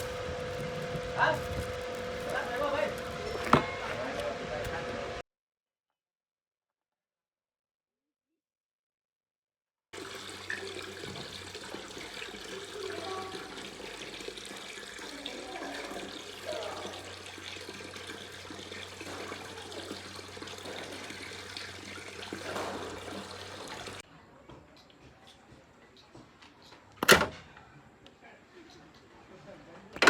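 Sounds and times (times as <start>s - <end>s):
water running: 0.0s - 5.2s, 10.0s - 24.0s.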